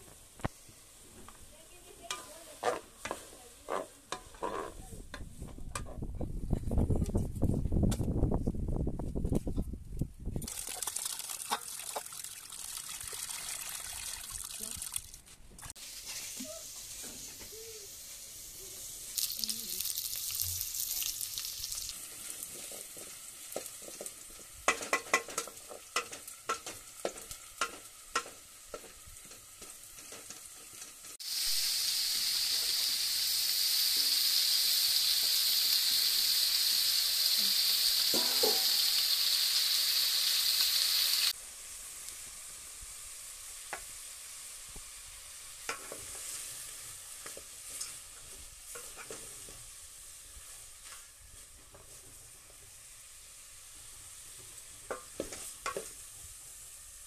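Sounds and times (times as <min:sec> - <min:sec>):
loud steady sizzle: 0:00.0 - 0:05.8, 0:10.4 - 0:14.8, 0:15.6 - 0:57.0
food frying in a pot: 0:00.0 - 0:05.9, 0:10.4 - 0:57.0
spatula knocking and scraping a pot: 0:02.1 - 0:06.0, 0:22.5 - 0:31.0, 0:38.1 - 0:38.8.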